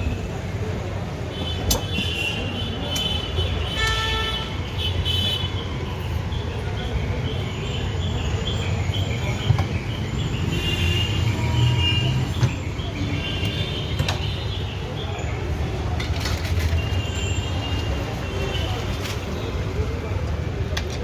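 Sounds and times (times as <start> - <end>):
road traffic: 0.0 - 21.0
car horns tooting: 1.4 - 5.6.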